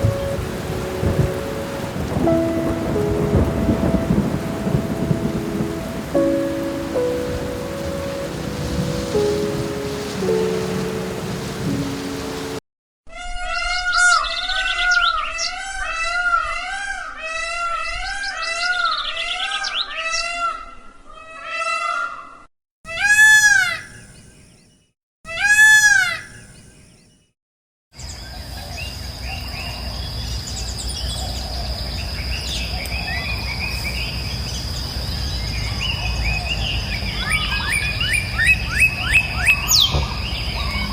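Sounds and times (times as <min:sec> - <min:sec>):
rushing water: 0:00.0 - 0:12.6, 0:35.5 - 0:40.9
loud bird calls: 0:36.3 - 0:40.9.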